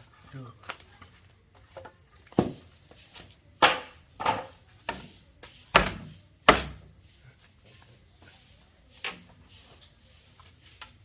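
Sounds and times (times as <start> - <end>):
hard knocks on wood: 2.4 - 2.6, 3.6 - 5.0, 5.7 - 6.9.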